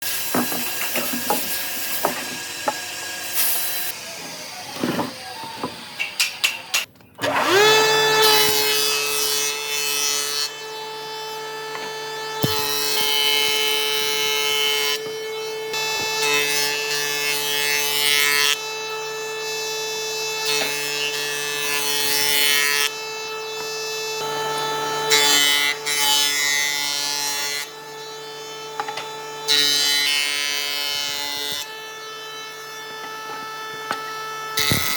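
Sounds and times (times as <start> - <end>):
power tool cutting wood: 0.0 - 34.9
wood knocking and scraping: 11.7 - 13.2.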